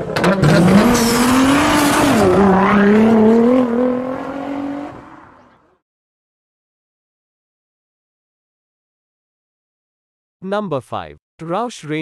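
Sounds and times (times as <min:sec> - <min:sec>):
car engine accelerating: 0:00.0 - 0:05.8.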